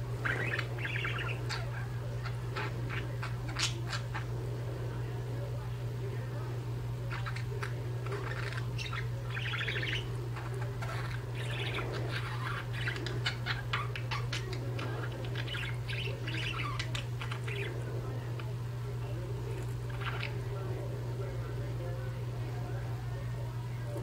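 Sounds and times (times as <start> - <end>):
budgerigars chattering: 0.0 - 4.4, 7.0 - 18.6, 19.8 - 20.8
steady low hum: 0.0 - 24.0.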